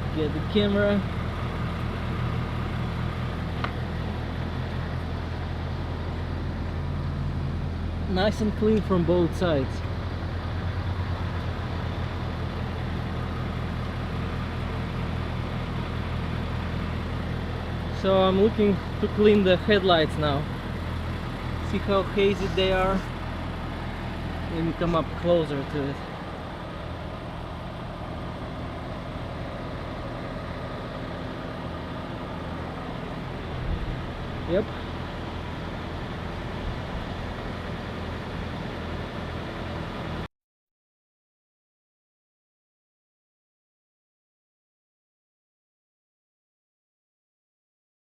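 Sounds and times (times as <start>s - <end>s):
truck diesel engine idling: 0.0s - 40.3s.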